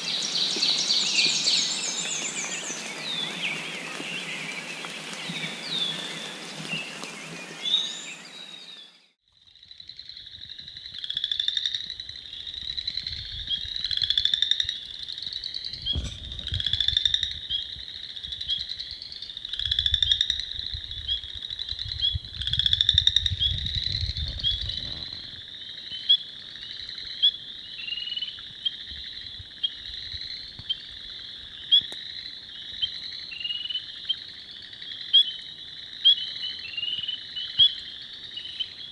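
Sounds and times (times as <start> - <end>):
frogs peeping in chorus: 0.0 - 9.0, 9.6 - 38.9
hissy outdoor ambience: 0.0 - 9.1.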